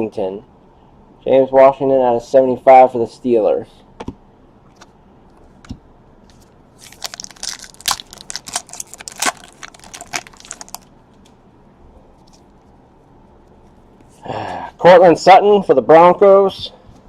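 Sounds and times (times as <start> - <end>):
card packaging crinkling: 6.3 - 11.3.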